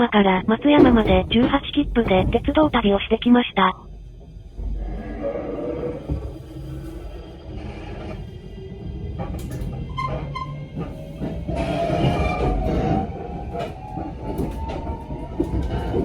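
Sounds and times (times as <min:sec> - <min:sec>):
train rumble: 0:00.0 - 0:16.0
wheels clicking over rail joints: 0:07.9 - 0:16.0.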